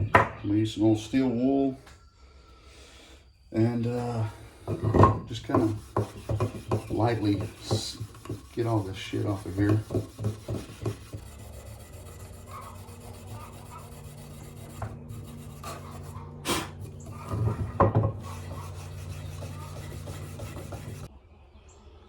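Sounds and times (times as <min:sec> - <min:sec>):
steel wool scrubbing wood: 0:03.8 - 0:21.1
plane knocking: 0:04.6 - 0:21.1.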